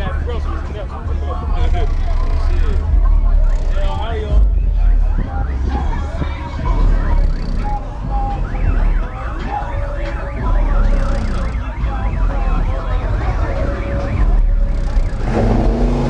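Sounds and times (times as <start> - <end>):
engine revving: 0.0 - 16.0
heavy deep bass: 0.0 - 16.0
siren yelping: 5.0 - 15.4.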